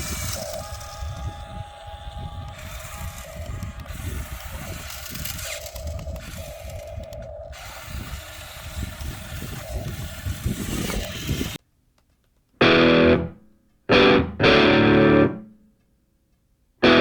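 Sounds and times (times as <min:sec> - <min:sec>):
electric motors whining: 0:00.0 - 0:11.6
mechanical rattling: 0:02.5 - 0:11.6.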